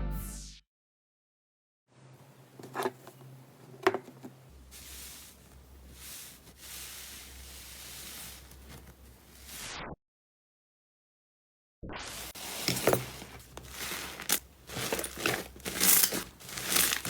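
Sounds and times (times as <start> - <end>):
slime hissing rustle: 4.6 - 9.7.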